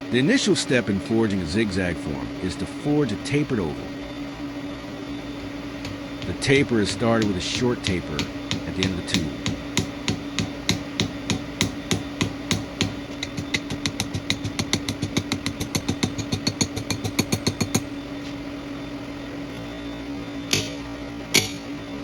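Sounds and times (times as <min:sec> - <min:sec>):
machine motor humming: 0:00.0 - 0:22.0
power hammer striking a tube: 0:05.8 - 0:17.9, 0:20.5 - 0:21.7.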